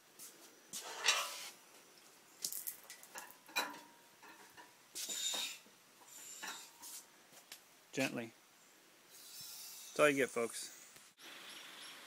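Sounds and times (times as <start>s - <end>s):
metal clinks and scrapes: 0.8s - 1.5s, 2.5s - 7.0s.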